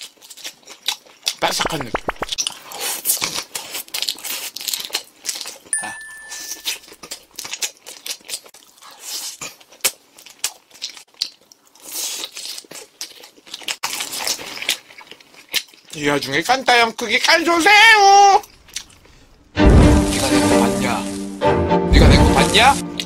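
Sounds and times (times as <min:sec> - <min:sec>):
chewing crispy fried shrimp: 0:00.0 - 0:05.7, 0:06.8 - 0:17.3, 0:18.4 - 0:19.4
high electronic beep: 0:05.8 - 0:06.8.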